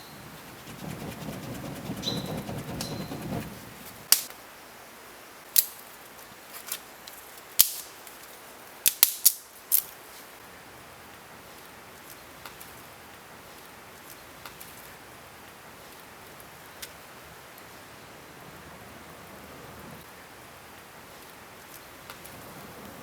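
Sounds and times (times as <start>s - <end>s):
rustling: 0.0s - 4.3s, 6.4s - 10.4s
sharp cracks or knocks: 4.0s - 4.3s.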